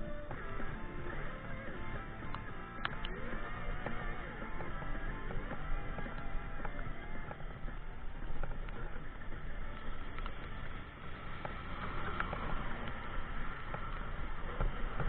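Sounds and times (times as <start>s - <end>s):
small clicks and knocks: 1.5s - 10.8s.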